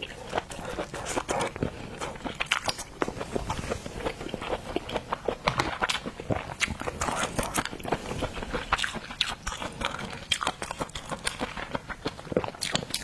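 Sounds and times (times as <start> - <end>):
wet chewing and mouth smacking: 0.0 - 13.0.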